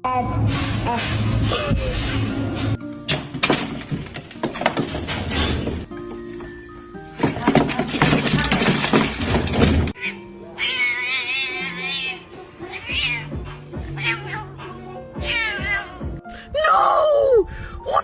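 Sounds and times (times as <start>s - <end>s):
background music: 0.0s - 18.0s
cat meowing: 10.0s - 13.3s, 13.9s - 14.6s, 15.2s - 16.0s.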